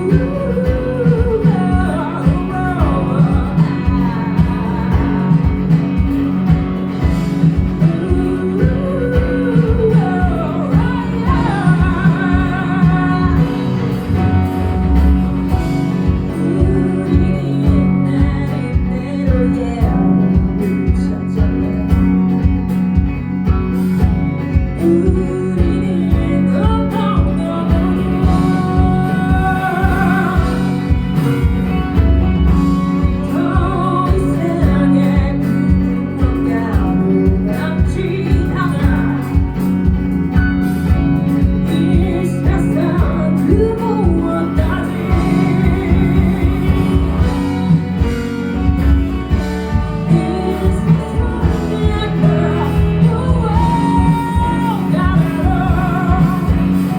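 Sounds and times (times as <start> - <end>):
drum beat: 0.0 - 19.6, 26.2 - 56.9
person singing: 0.0 - 22.7, 24.5 - 56.9
live band playing: 0.0 - 56.9.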